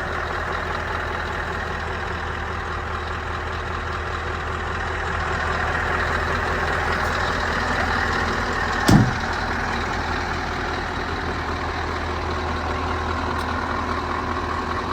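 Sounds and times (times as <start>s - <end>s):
truck diesel engine idling: 0.0s - 14.9s
thump: 8.9s - 9.5s.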